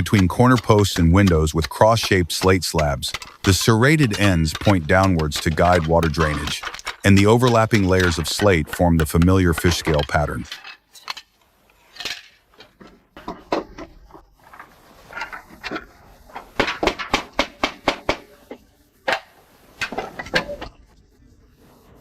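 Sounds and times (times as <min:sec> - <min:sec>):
hammer tapping nails: 0:00.0 - 0:10.4, 0:16.6 - 0:18.3.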